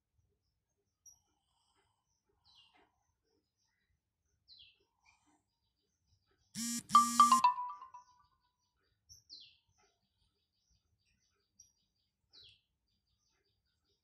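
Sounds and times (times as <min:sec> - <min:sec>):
loud brief buzzing tone: 0:06.6 - 0:07.9
ringing higher notes: 0:06.7 - 0:08.0.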